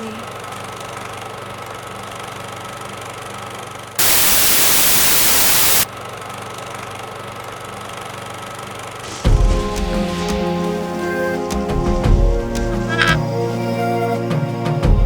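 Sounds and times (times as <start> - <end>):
loud white-noise static: 4.0 - 5.9.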